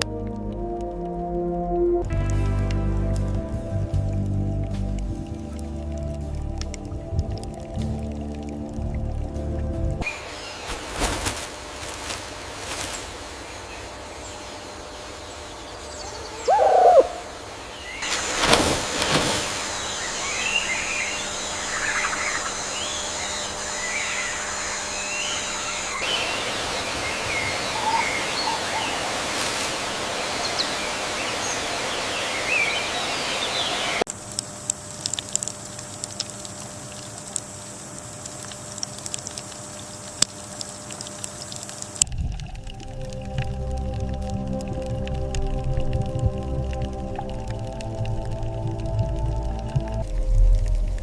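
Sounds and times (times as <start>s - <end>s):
birds chirping: 10.0s - 34.1s
outdoor hiss: 10.0s - 45.2s.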